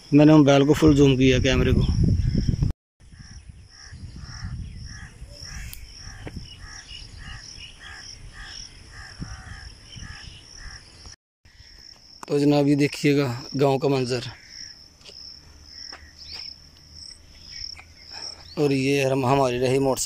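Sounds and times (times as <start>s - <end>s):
insects chirring: 1.8s - 20.0s
bird calling: 3.1s - 11.8s.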